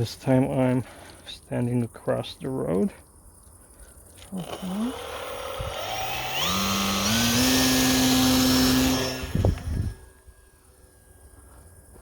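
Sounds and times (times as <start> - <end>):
electric motor and propeller whine: 4.3 - 12.0.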